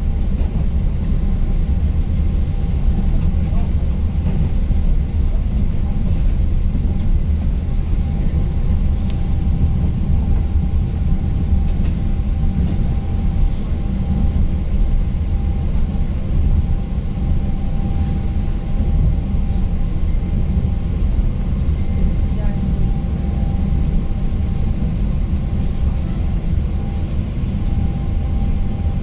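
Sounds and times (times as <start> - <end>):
train wheels rumbling on track: 0.0 - 29.0
faint steady whine: 6.6 - 29.0.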